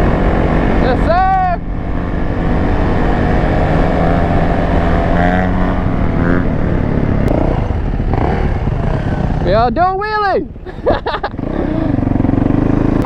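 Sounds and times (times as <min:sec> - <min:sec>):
wind noise on microphone: 0:00.0 - 0:09.9
dirt bike engine running: 0:00.0 - 0:13.0.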